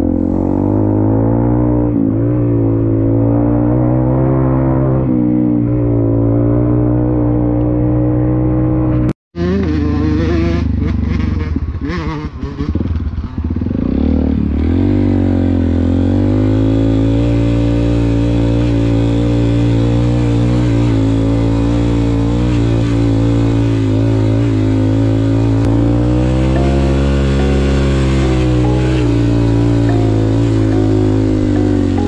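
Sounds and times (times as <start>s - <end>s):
dirt bike engine running: 9.4s - 32.0s.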